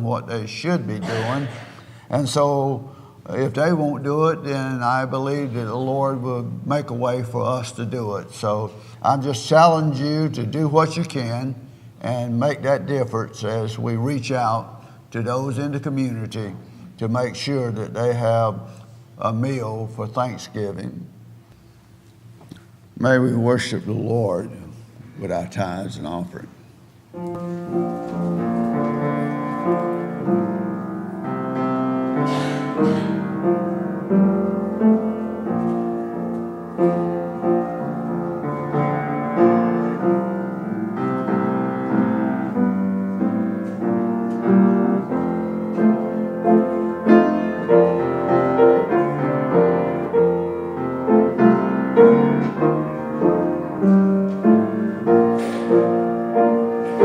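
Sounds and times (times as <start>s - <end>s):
slow solo piano chords: 27.2s - 57.0s.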